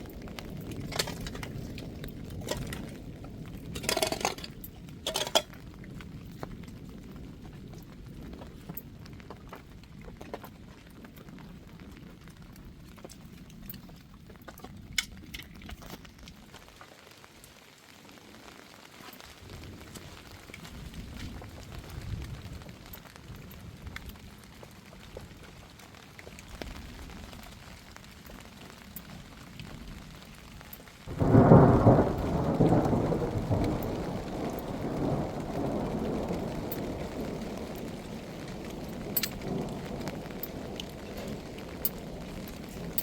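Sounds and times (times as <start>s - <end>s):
rain falling: 0.0s - 43.0s
loud thunderclap: 31.1s - 43.0s.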